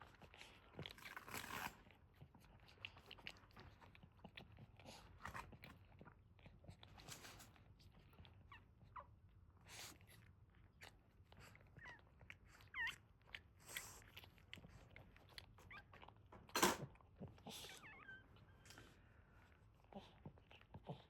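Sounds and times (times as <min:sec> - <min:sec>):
dog licking puppies: 0:00.0 - 0:21.0
puppies squeaking: 0:12.6 - 0:13.0, 0:17.7 - 0:18.6.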